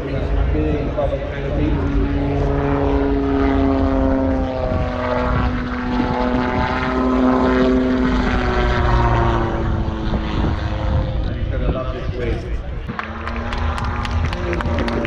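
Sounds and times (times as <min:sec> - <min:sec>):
autogyro engine and propeller droning: 0:00.0 - 0:15.0.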